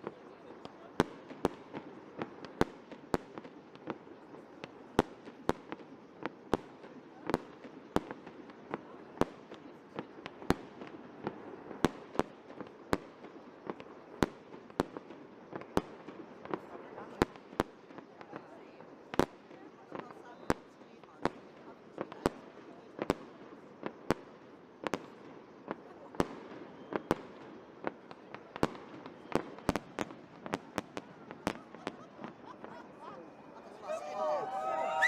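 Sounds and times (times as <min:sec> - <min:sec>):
fireworks banging: 0:28.0 - 0:33.1.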